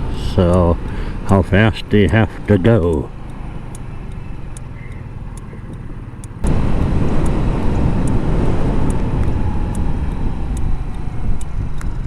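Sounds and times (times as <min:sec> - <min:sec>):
scooter engine running: 0:00.0 - 0:12.0
wind noise on microphone: 0:04.6 - 0:12.0.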